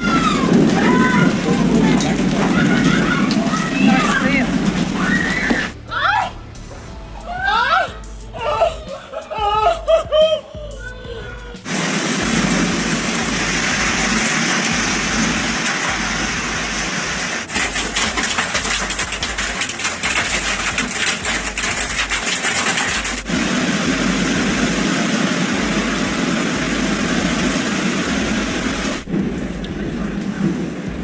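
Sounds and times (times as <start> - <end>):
rain and hail roar: 0.0 - 5.7, 11.6 - 31.0
sharp hailstone strikes: 11.7 - 29.4.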